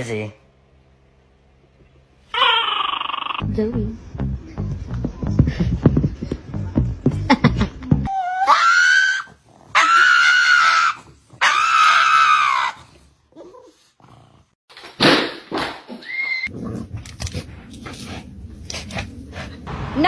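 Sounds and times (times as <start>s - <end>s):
dog yelping: 2.3s - 3.4s, 8.1s - 13.7s
dog howling: 8.1s - 12.9s.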